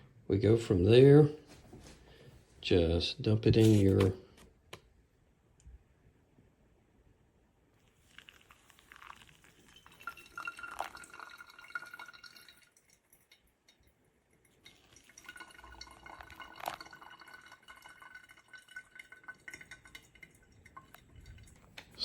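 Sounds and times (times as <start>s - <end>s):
faint steady ringing: 7.8s - 22.0s
liquid pouring into glass: 7.8s - 22.0s.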